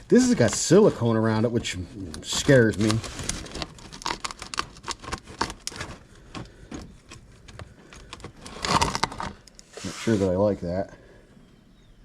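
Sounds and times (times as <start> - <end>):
hand tool scraping on metal: 8.4 - 10.5.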